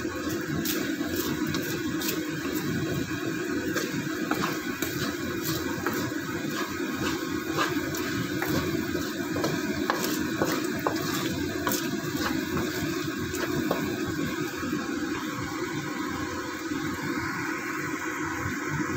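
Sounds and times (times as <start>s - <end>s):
coconut milk bubbling and sizzling: 0.0s - 18.9s
steady low hum: 0.0s - 18.9s.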